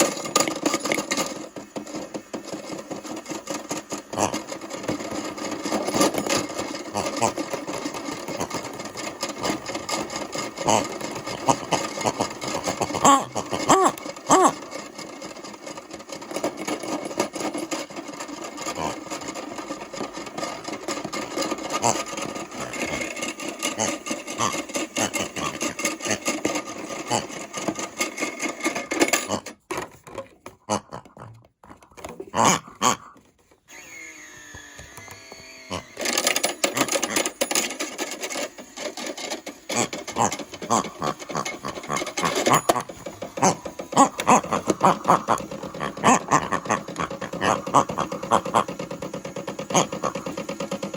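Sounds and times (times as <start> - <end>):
toy washing machine motor whirring: 0.0 - 50.9.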